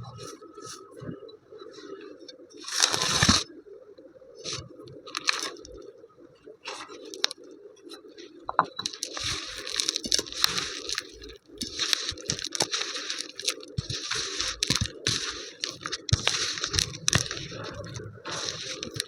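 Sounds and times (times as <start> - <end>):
crumbly material crunching: 2.6 - 3.5, 4.5 - 5.8, 6.6 - 19.0.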